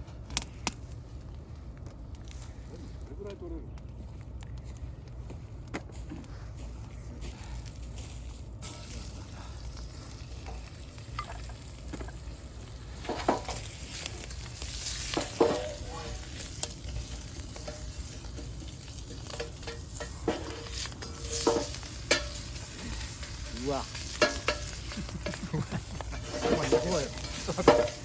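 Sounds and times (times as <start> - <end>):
food sizzling in a frying pan: 8.0 - 28.0
utensil knocking and scraping pan: 13.0 - 14.0, 14.6 - 28.0.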